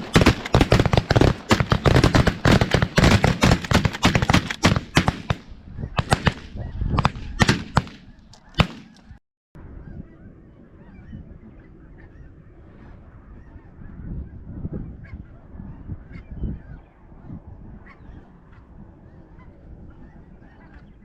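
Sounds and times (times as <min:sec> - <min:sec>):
shotgun fire: 0:00.0 - 0:09.0.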